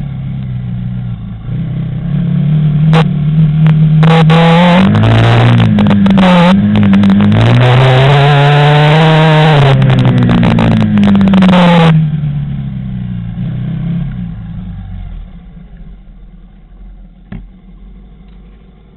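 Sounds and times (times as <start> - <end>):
quad bike engine running: 0.0 - 18.9
rough crackle: 3.0 - 12.0.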